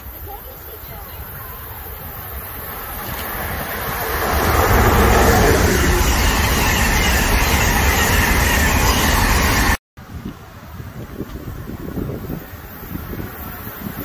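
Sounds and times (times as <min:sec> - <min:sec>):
train passing: 0:00.0 - 0:09.8
wind noise: 0:00.3 - 0:14.0.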